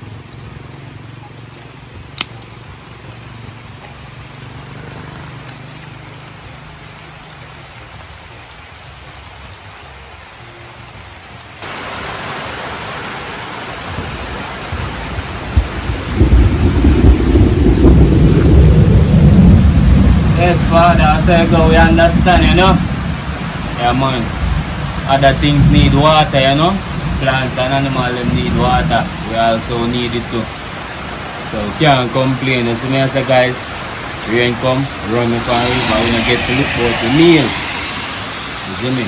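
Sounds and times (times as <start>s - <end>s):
heavy rain: 0.0s - 39.0s
thunder rumbling: 13.9s - 23.4s, 34.5s - 39.0s.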